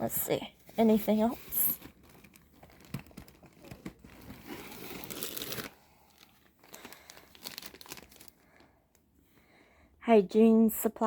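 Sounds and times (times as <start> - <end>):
rummaging through a backpack: 0.7 - 8.3
packaging crinkling: 1.2 - 8.7.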